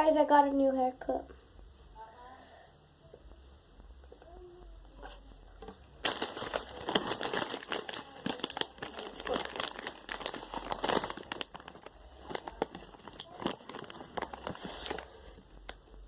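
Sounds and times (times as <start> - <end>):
chip bag crinkling: 6.0 - 15.8.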